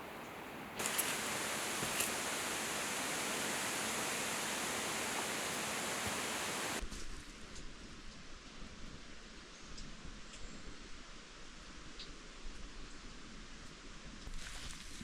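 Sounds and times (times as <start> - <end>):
running water rushing: 0.0 - 6.8
rustling: 0.0 - 6.8.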